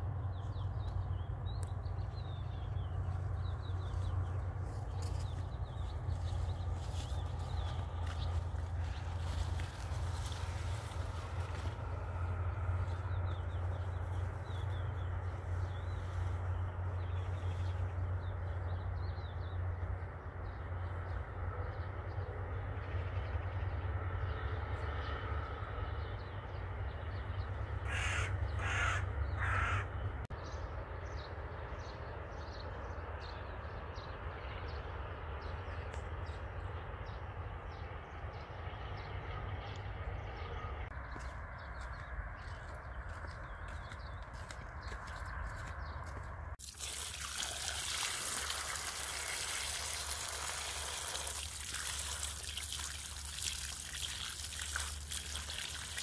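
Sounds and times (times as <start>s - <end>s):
low outdoor rumble: 0.0s - 56.0s
bird calling: 27.8s - 30.0s.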